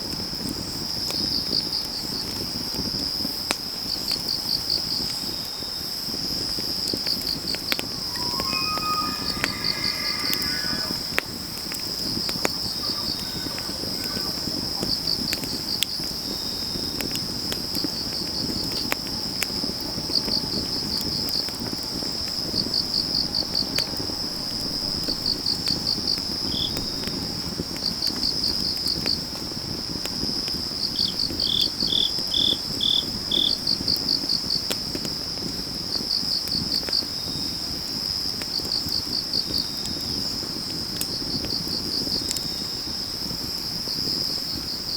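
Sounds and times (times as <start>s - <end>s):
wood fire crackling: 0.1s - 44.9s
insect trill: 7.1s - 29.3s, 30.1s - 34.1s
insect slower chirps: 7.2s - 15.0s, 20.3s - 28.2s
insect pulsed chirps: 7.9s - 12.0s.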